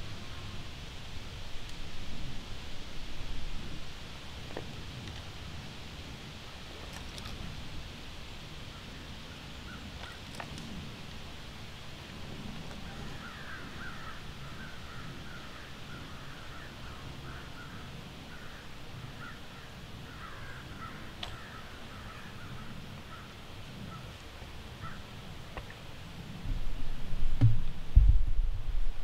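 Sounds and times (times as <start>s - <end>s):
birds calling: 12.7s - 25.1s.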